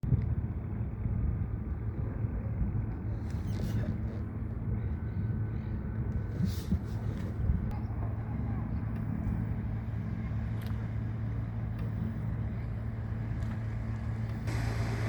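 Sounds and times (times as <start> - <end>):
boat motor rumbling: 0.1 - 15.0
brief hisses: 14.5 - 15.0.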